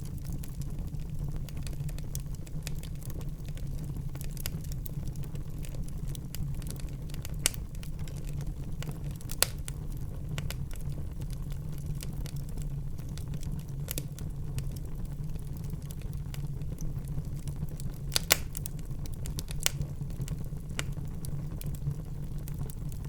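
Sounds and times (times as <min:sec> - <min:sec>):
fire flames rumbling: 0:00.0 - 0:23.0
wood fire crackling: 0:00.0 - 0:23.0
loud fire pops: 0:06.3 - 0:14.8, 0:15.5 - 0:23.0.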